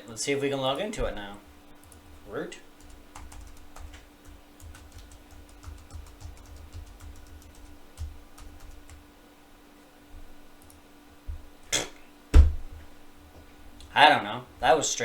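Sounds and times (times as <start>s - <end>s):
keyboard keys clicking: 2.8s - 9.0s
loud knock: 12.3s - 12.8s.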